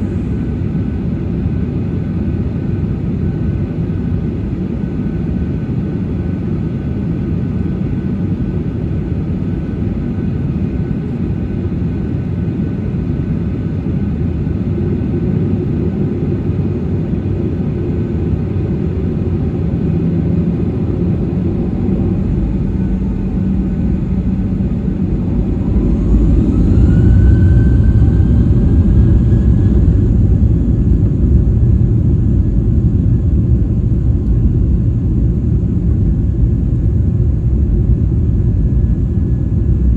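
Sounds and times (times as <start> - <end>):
jet engines spooling up: 12.0 - 34.5.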